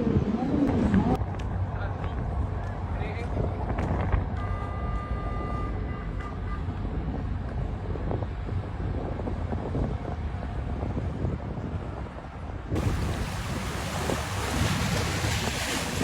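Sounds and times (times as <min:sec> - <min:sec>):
loud hissing rush: 0:12.8 - 0:16.0.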